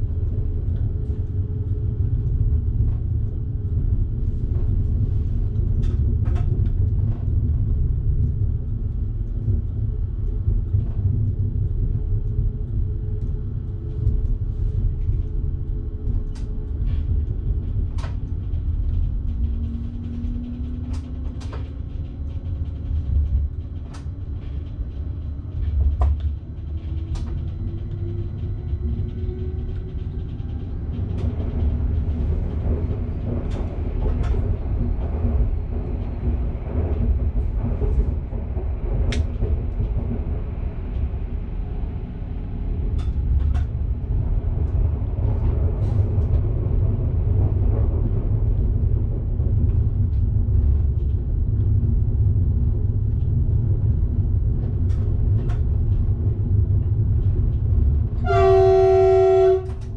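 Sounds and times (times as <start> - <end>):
electric train rumbling: 0.0 - 59.9.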